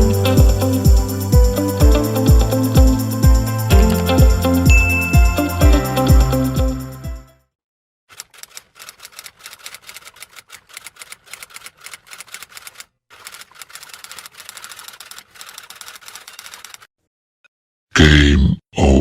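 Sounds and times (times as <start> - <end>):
typewriter keys clacking: 8.1 - 16.9.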